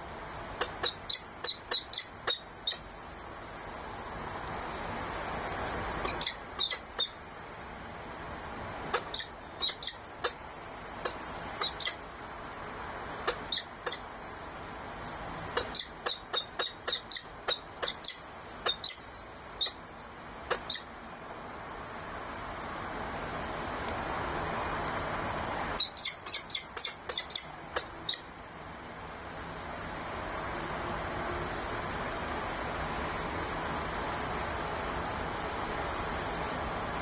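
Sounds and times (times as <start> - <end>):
birds chirping: 0.6 - 2.9, 6.0 - 7.2, 8.9 - 12.1, 15.6 - 21.6, 25.8 - 28.3.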